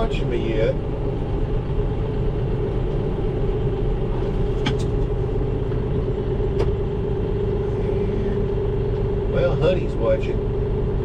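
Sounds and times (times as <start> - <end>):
tractor engine running: 0.0 - 11.0
brief knocks and clanks: 4.6 - 5.1.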